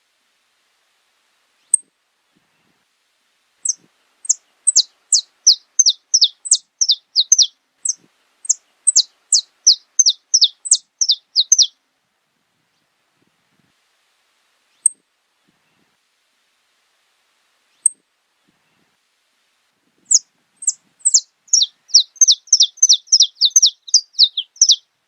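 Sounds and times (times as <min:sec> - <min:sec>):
finch singing: 0:03.6 - 0:11.7, 0:20.1 - 0:24.9.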